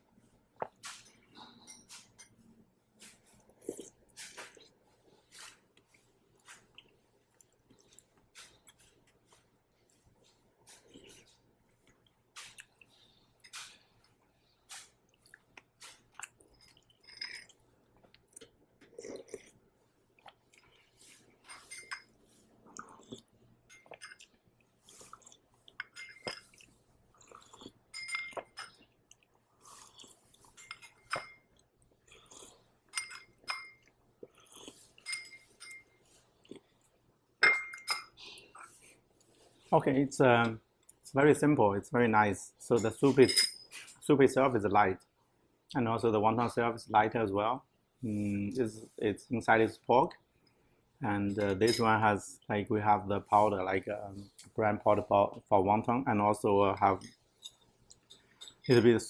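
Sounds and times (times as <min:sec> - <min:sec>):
chewing and slurping soup: 0:03.0 - 0:37.1, 0:37.8 - 0:39.7, 0:56.9 - 0:58.8
spoon clinking against bowl: 0:21.5 - 0:22.1, 0:25.8 - 0:26.5, 0:27.9 - 0:28.8, 0:30.6 - 0:31.5, 0:32.9 - 0:33.9, 0:35.0 - 0:36.0, 0:37.4 - 0:38.2.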